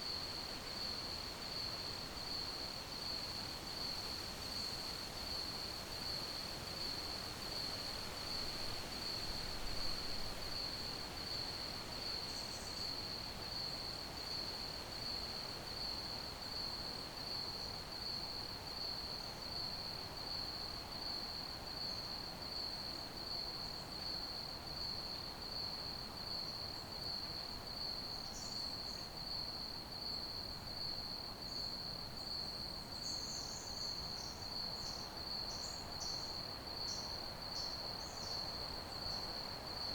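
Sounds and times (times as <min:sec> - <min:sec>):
crickets chirping: 0:24.9 - 0:39.9.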